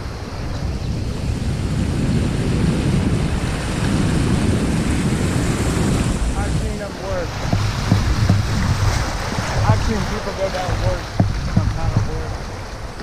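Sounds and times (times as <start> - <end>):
wind buffeting microphone: 0.0 - 13.0
river rapids rushing: 5.0 - 13.0.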